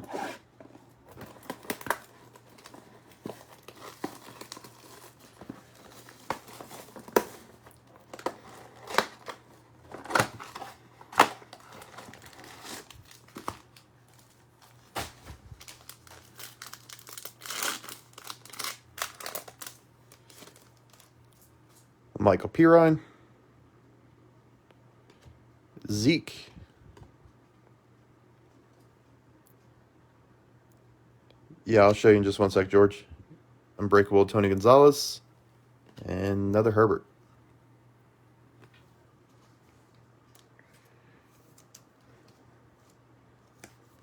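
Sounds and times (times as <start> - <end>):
plastic wrapping tearing and crumpling: 1.1 - 21.4.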